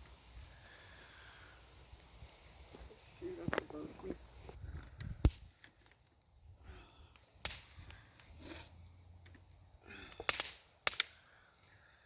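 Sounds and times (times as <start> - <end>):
brush fire burning: 0.0 - 12.0
fire popping and cracking: 4.4 - 8.3, 9.2 - 11.5.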